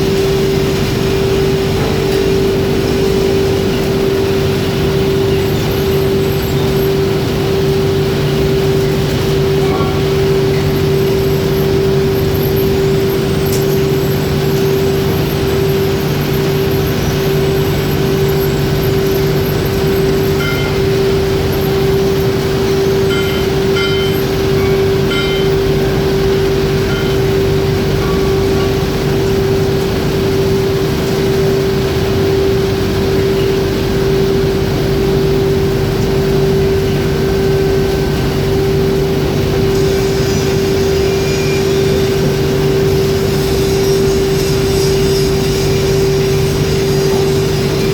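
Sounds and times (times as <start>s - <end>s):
foundry machinery humming: 0.0s - 47.9s.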